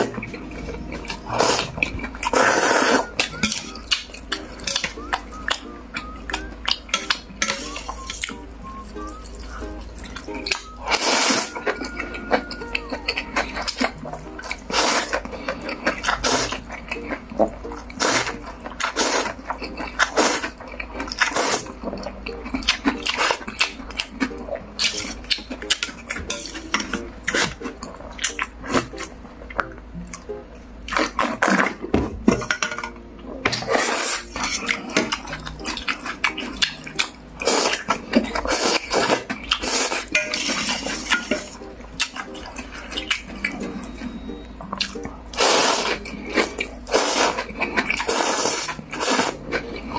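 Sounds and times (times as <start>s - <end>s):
utensils clinking against bowl: 0.0s - 5.6s, 6.3s - 8.4s, 9.1s - 29.0s, 30.9s - 49.9s
person slurping noodles: 1.1s - 3.2s, 10.8s - 11.7s, 14.6s - 16.6s, 18.0s - 19.4s, 20.1s - 20.6s, 21.2s - 21.7s, 33.6s - 35.0s, 37.4s - 41.5s, 45.3s - 49.9s.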